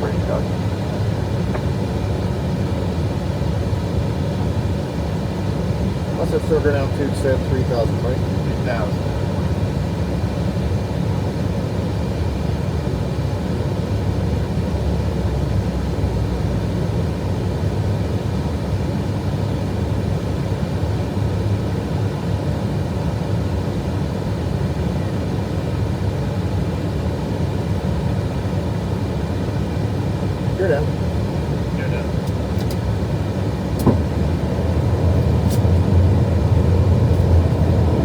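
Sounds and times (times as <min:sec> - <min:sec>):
rumble of airflow and engines: 0:00.0 - 0:38.0.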